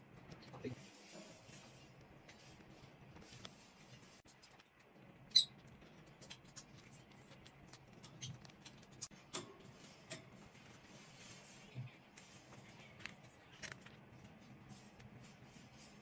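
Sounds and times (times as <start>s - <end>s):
paper and stationery handling: 0.0s - 4.9s, 9.8s - 16.0s.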